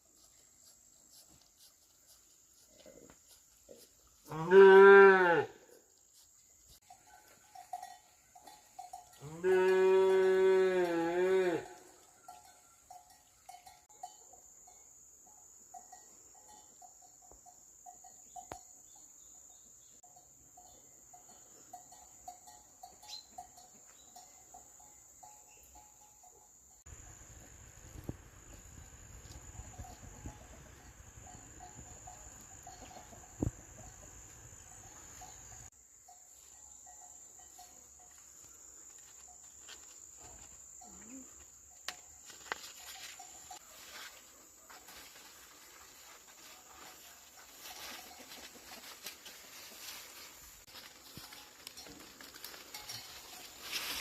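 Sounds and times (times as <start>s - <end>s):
insects chirring: 0.1s - 46.2s
cow mooing: 4.3s - 5.6s, 9.2s - 11.8s.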